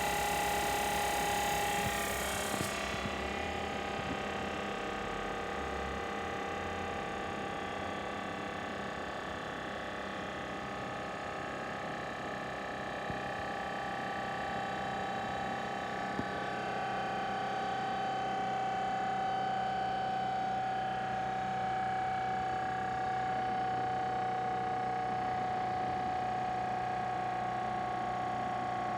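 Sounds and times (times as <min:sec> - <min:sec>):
air compressor humming and whining: 0:00.0 - 0:28.9.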